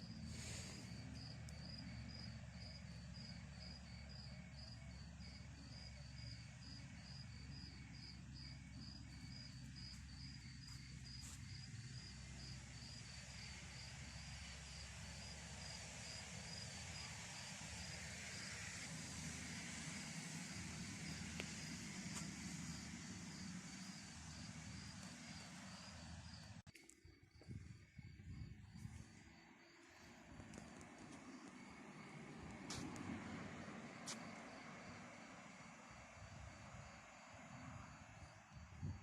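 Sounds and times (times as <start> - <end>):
cricket chirping: 0.0 - 39.0
faint low rumble: 19.0 - 39.0.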